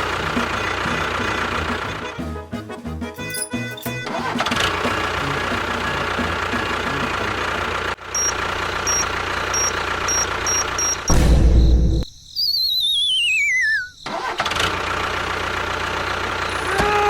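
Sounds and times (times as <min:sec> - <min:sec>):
vehicle engine running: 0:00.0 - 0:02.4, 0:03.6 - 0:11.3, 0:14.5 - 0:17.0
short high beeps: 0:08.2 - 0:11.1.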